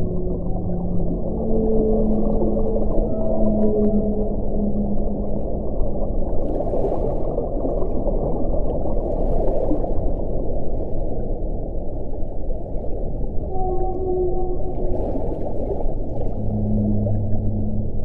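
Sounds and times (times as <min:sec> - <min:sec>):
faint low tone: 0:00.0 - 0:05.2, 0:16.3 - 0:18.0.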